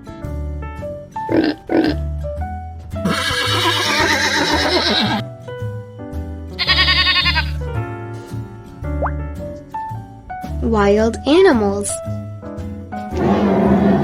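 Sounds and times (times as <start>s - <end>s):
background music: 0.0s - 14.0s
farm animal calls: 6.6s - 7.6s.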